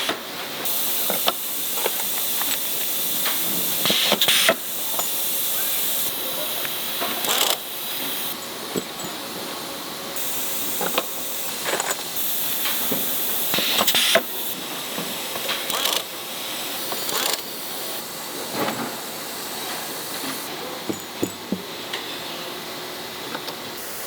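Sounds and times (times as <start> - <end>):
high hiss: 0.0 - 8.4, 10.1 - 18.4.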